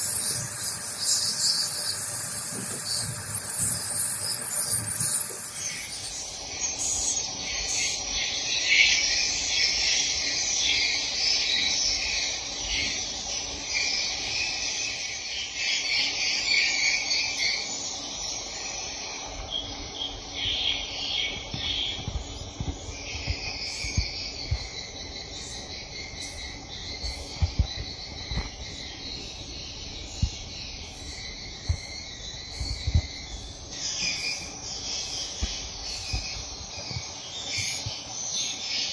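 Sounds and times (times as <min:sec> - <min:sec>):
swiftlets twittering: 0:00.0 - 0:08.0.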